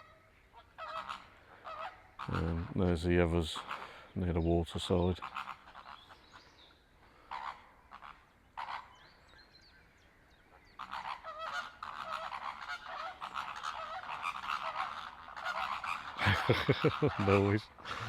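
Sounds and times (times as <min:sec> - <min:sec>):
flamingos honking and chattering: 0:00.0 - 0:06.3, 0:07.0 - 0:09.2, 0:10.5 - 0:18.0.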